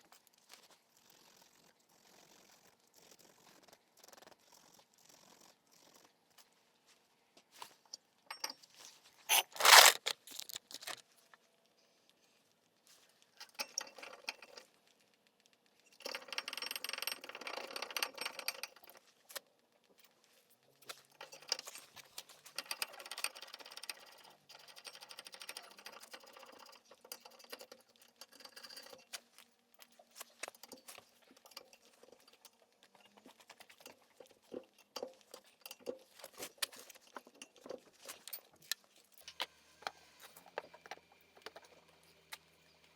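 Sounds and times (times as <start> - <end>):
metal scraping and rubbing: 9.3 - 11.0
metal tools clinking: 9.3 - 11.0.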